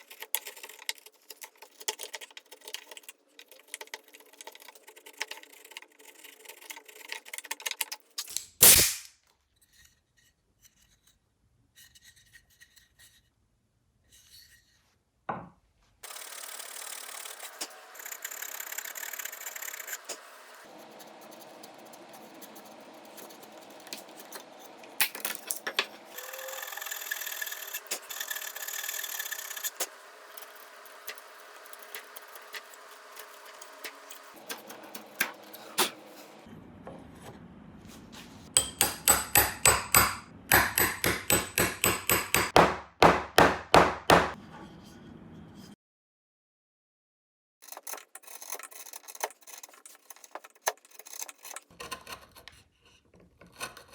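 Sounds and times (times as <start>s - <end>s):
tool clicks and knocks: 38.6s - 44.4s.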